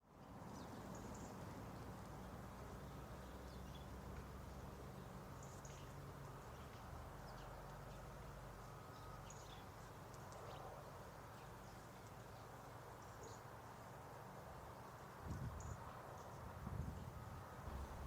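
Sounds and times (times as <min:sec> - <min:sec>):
low background rumble: 0:17.7 - 0:18.0.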